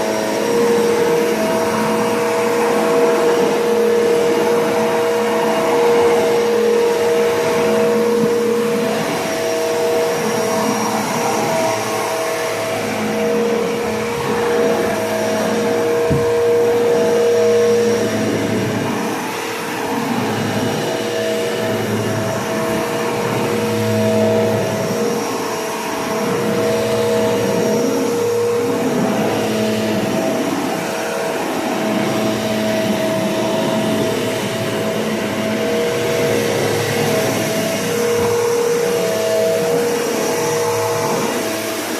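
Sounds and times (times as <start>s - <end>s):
upright vacuum cleaner running: 0.0s - 41.9s.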